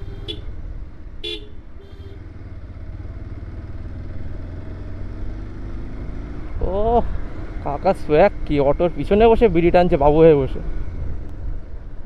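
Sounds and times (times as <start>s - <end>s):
vehicle horn tooting: 0.0s - 0.5s, 1.2s - 2.3s
motorcycle engine rumble: 0.0s - 12.0s.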